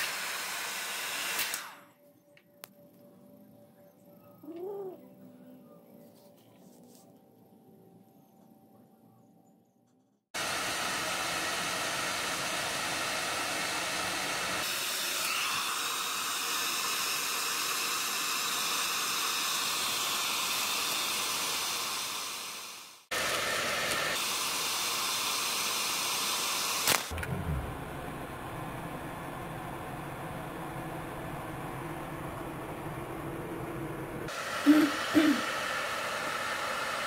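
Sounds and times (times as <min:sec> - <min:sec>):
hair dryer blowing: 0:00.0 - 0:01.9, 0:10.4 - 0:37.0.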